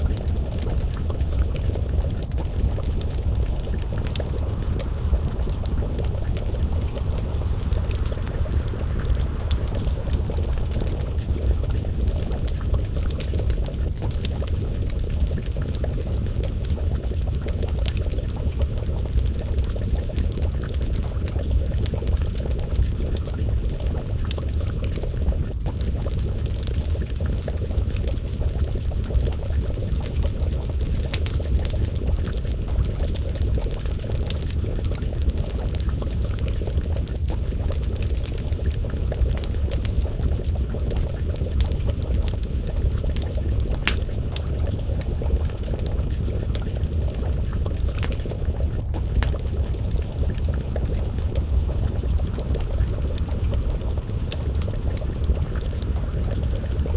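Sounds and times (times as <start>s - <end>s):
low rumble: 0.0s - 26.4s
stew bubbling in a pot: 0.0s - 56.9s
wood fire crackling: 0.0s - 56.9s.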